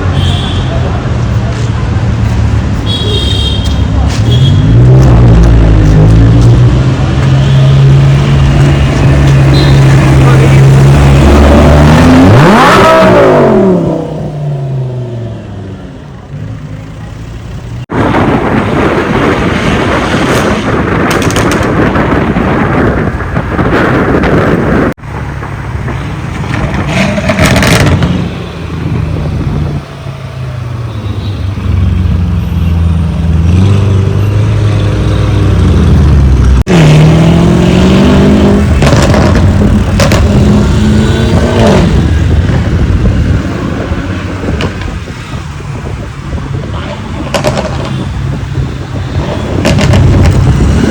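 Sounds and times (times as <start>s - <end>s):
car engine revving and accelerating: 4.6s - 15.4s, 33.3s - 44.5s.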